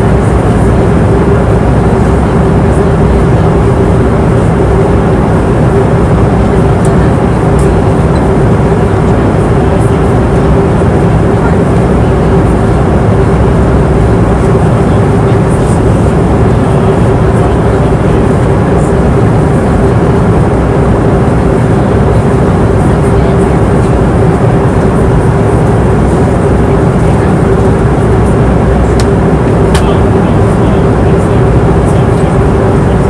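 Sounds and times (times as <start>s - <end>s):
airliner cabin engine rush: 0.0s - 33.0s
constant hum: 0.0s - 33.0s.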